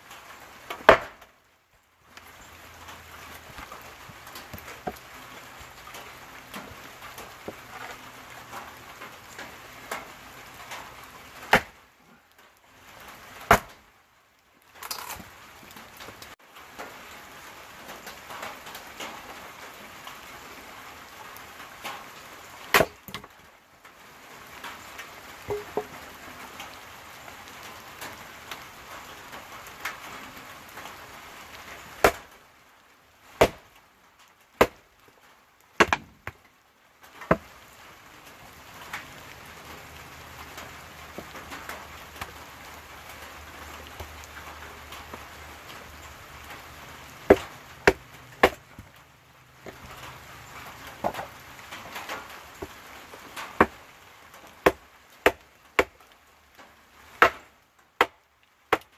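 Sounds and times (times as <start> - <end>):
rain hissing: 0.0 - 58.9
sticks snapping: 14.8 - 15.3.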